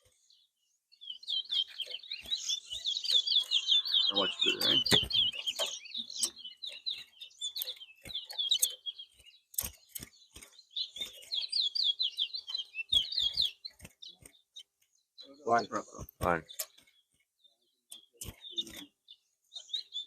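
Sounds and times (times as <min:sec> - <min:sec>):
finch singing high chirps: 0:00.0 - 0:20.0
sharp clicks: 0:09.5 - 0:11.3.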